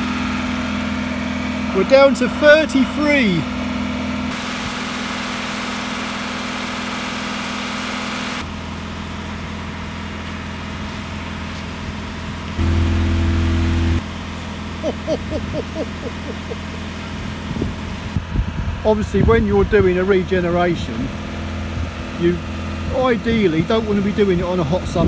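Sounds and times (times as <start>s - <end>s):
diesel engine idling: 0.0s - 25.0s
low hum: 12.0s - 18.8s.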